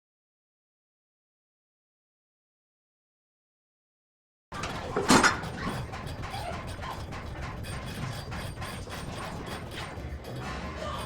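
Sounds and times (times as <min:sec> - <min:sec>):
exercise machine clicking and rattling: 0:04.5 - 0:11.0.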